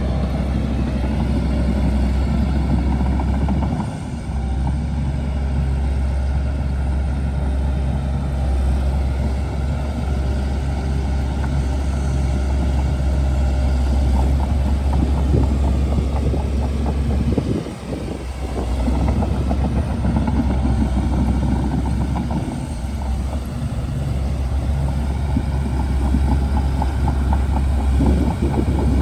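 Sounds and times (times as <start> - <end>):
bulldozer diesel engine running: 0.0 - 29.0
crackling and clatter: 9.0 - 29.0.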